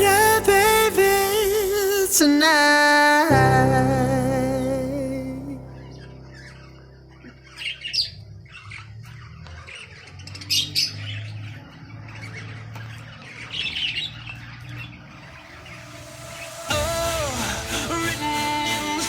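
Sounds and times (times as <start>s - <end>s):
birds squawking and calling: 5.8s - 16.6s.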